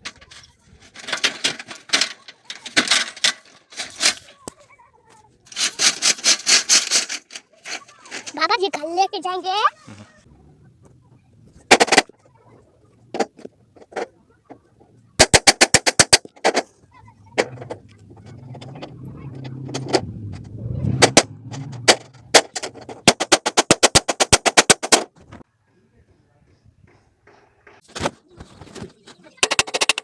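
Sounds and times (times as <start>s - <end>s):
metal shutter clattering: 0.0s - 4.3s, 17.3s - 25.0s
low hum: 17.2s - 23.0s.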